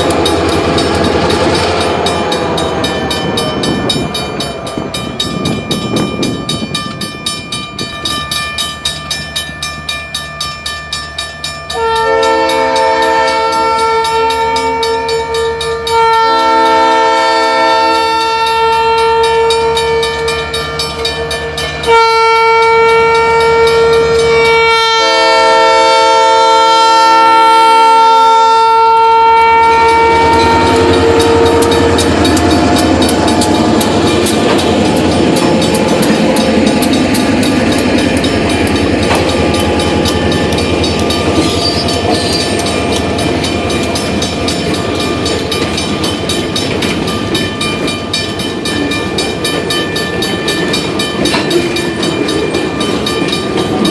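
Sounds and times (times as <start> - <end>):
train wheels clattering on rails: 0.0 - 25.4, 29.6 - 53.9
locomotive air horn blasts: 11.7 - 20.5, 21.2 - 33.8.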